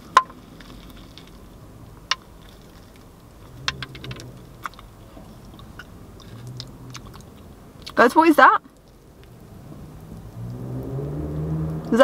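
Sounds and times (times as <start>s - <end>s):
person chewing food: 2.1s - 8.0s.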